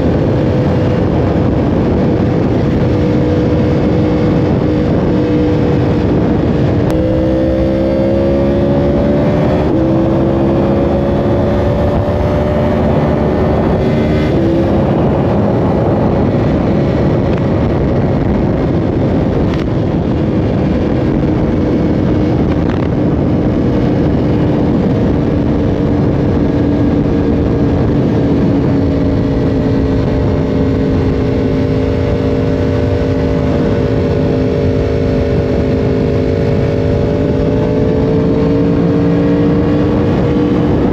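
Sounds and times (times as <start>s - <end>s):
motorcycle engine running hard: 0.0s - 40.9s
wind and road noise: 0.0s - 40.9s.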